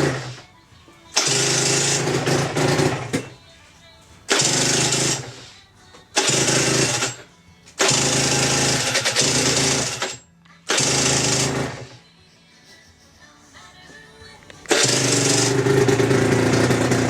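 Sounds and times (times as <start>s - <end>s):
two-stroke motorcycle engine revving: 0.0s - 0.3s, 1.2s - 3.2s, 4.3s - 5.3s, 6.2s - 7.2s, 7.8s - 11.9s, 14.7s - 17.0s.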